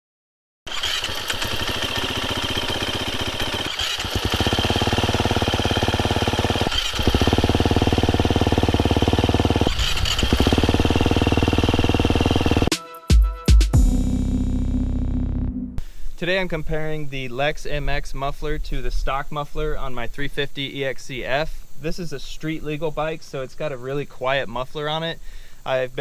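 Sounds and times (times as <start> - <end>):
dirt bike engine running: 0.7 - 12.7.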